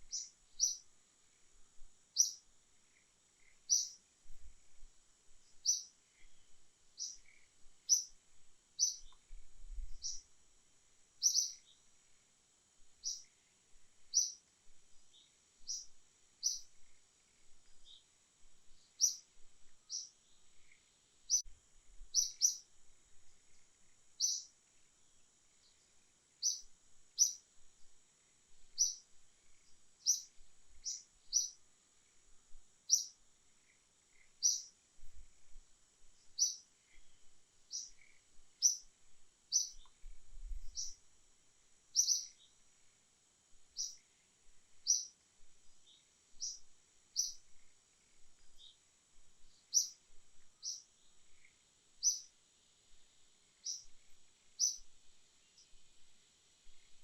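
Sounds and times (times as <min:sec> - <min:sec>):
bird chirping: 0:00.0 - 0:01.5, 0:02.1 - 0:04.1, 0:05.4 - 0:08.2, 0:08.8 - 0:10.3, 0:11.2 - 0:11.9, 0:13.0 - 0:13.4, 0:14.0 - 0:21.5, 0:22.1 - 0:22.7, 0:23.4 - 0:24.6, 0:25.6 - 0:27.4, 0:28.7 - 0:32.1, 0:32.9 - 0:34.8, 0:36.2 - 0:38.9, 0:39.5 - 0:41.0, 0:41.9 - 0:42.6, 0:43.7 - 0:44.1, 0:44.7 - 0:48.8, 0:49.4 - 0:52.3, 0:53.6 - 0:56.0
high-pitched insect hum: 0:00.0 - 0:57.0.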